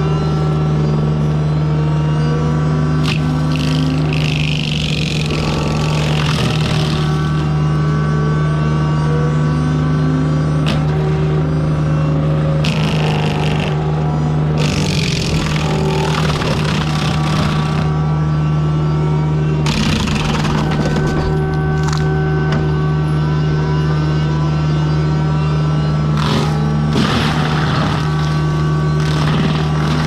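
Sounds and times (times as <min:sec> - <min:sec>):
diesel engine running: 0:00.0 - 0:30.0
hissing grinding noise: 0:03.0 - 0:07.9, 0:10.5 - 0:18.3, 0:19.6 - 0:22.2, 0:26.1 - 0:30.0.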